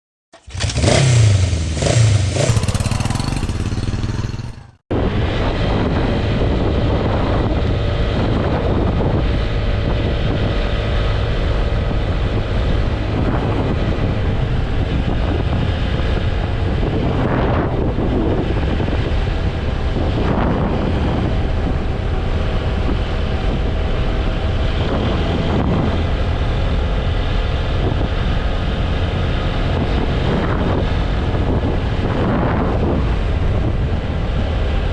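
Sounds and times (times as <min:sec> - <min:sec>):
road rumble: 0:00.3 - 0:34.9
motorcycle engine revving: 0:00.4 - 0:33.0
wind buffeting microphone: 0:02.4 - 0:34.9.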